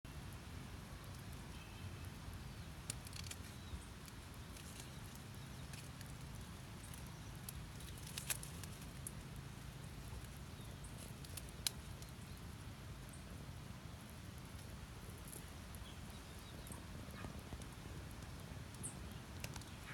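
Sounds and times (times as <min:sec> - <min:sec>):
low outdoor rumble: 0:00.1 - 0:19.9
small clicks and ticks: 0:02.6 - 0:12.4, 0:14.3 - 0:19.9.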